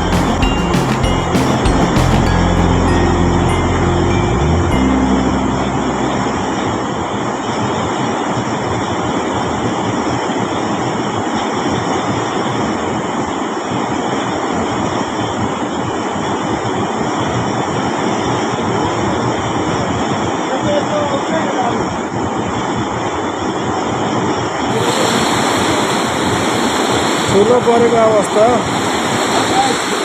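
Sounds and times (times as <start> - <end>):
music: 0.0 - 7.4
fast river water rushing: 24.7 - 30.0.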